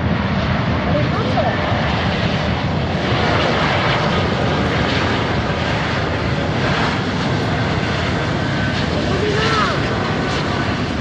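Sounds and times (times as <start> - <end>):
jet engines of landing airliner: 0.0 - 11.0.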